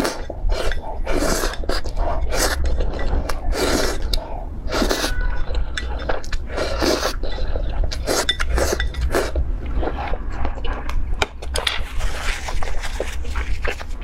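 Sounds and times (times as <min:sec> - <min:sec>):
utensils clinking against a dish: 0:00.0 - 0:04.2, 0:04.8 - 0:09.4
mouth eating sounds: 0:00.0 - 0:14.0.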